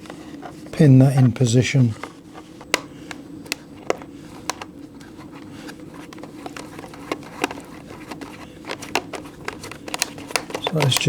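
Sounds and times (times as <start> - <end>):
faint steady hum: 0.0 - 11.0
light plastic clicks and taps: 6.1 - 11.0.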